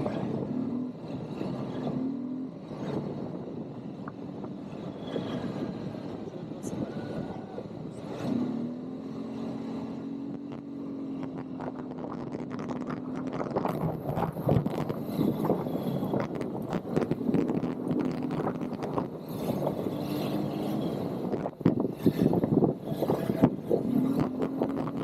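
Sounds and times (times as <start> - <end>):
atv engine running: 8.0 - 25.0.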